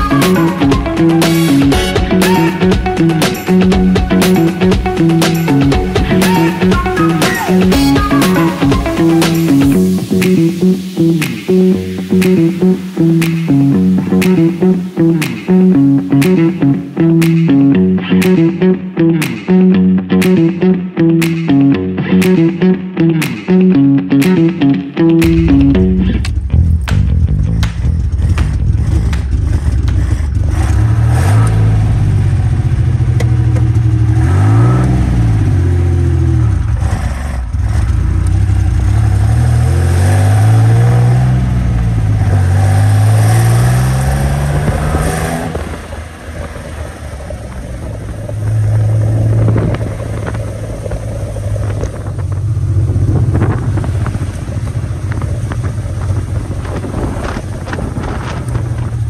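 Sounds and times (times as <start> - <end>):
car engine revving and idling: 25.2 - 59.0.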